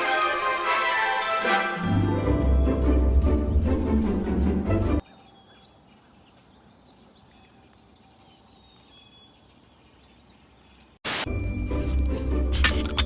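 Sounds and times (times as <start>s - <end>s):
music: 0.0s - 5.0s, 11.3s - 13.0s
faint outdoor background noise: 5.0s - 13.0s.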